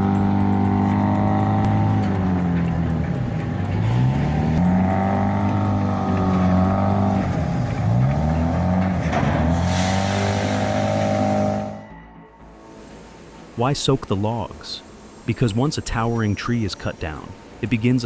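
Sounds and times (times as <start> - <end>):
engine revving up and down: 0.0 - 11.8.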